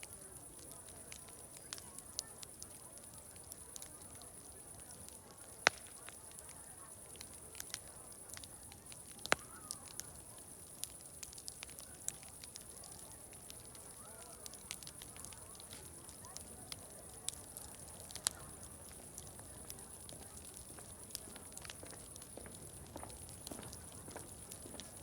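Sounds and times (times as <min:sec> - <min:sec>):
loud fire pops: 0:00.0 - 0:25.0
wood fire crackling: 0:00.0 - 0:25.0.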